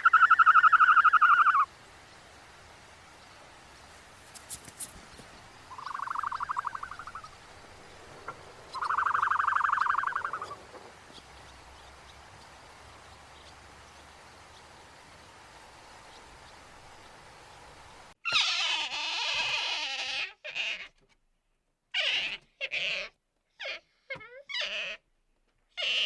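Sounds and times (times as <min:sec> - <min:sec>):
animal trilled calls: 0:00.0 - 0:01.7, 0:03.8 - 0:14.8, 0:18.3 - 0:20.9, 0:22.0 - 0:25.0, 0:25.8 - 0:26.0.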